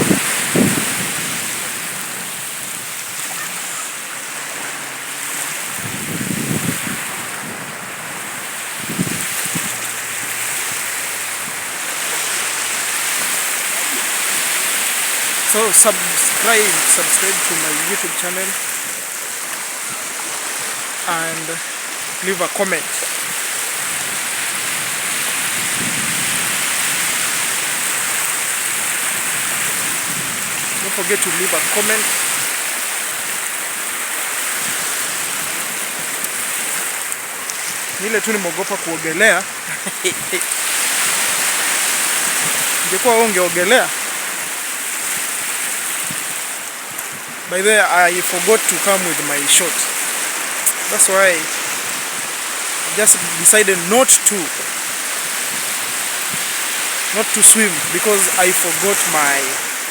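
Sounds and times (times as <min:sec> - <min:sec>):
wind thumping on microphone: 0:00.0 - 0:03.5, 0:05.4 - 0:15.4, 0:23.0 - 0:31.2, 0:39.4 - 0:42.9, 0:44.0 - 0:47.5, 0:54.6 - 0:57.1
surf washing onto beach: 0:00.0 - 0:59.9.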